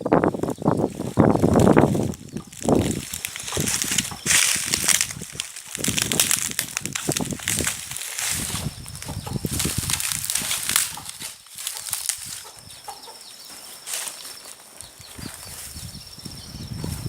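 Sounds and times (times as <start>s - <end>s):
hens scratching and rustling: 0.0s - 17.0s.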